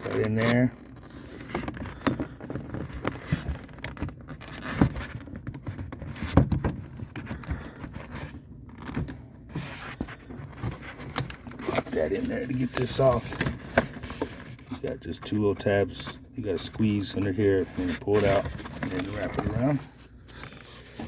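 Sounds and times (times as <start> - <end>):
plastic parts clicking and knocking: 0.0 - 9.2, 10.0 - 12.0.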